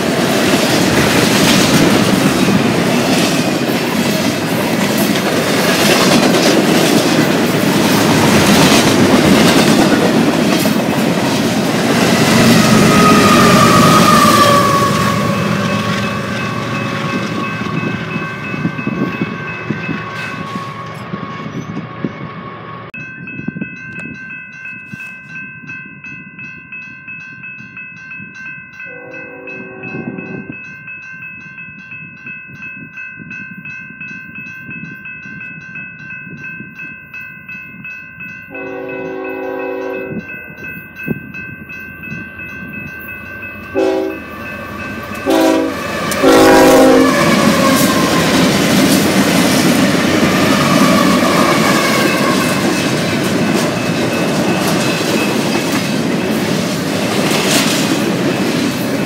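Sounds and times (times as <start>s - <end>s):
crossing warning bell ringing: 0.0s - 59.0s
freight train rumbling: 0.0s - 59.0s
locomotive horn blasts: 12.4s - 18.0s, 28.9s - 30.5s, 38.5s - 40.2s, 43.8s - 44.2s, 45.2s - 48.0s.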